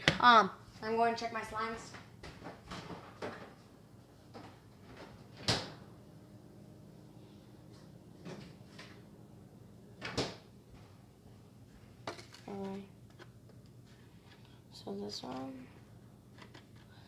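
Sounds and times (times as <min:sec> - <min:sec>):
low steady hum: 0:03.4 - 0:17.0.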